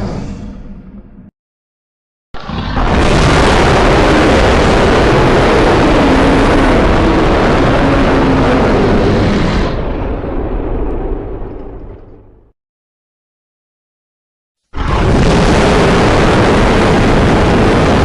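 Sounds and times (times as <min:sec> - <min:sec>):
rumbling monster roar: 0:02.4 - 0:10.8, 0:14.8 - 0:18.0.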